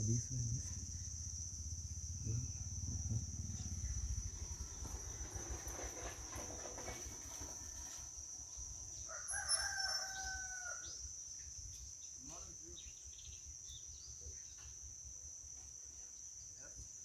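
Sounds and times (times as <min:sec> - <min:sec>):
high insect trill: 0:00.0 - 0:17.0
rooster crowing: 0:09.0 - 0:11.0.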